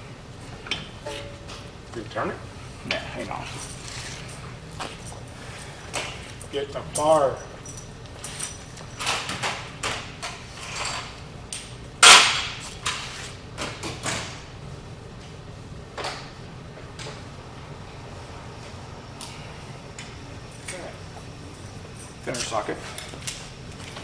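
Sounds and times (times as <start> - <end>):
metal hand tools clanking: 2.8 - 9.2.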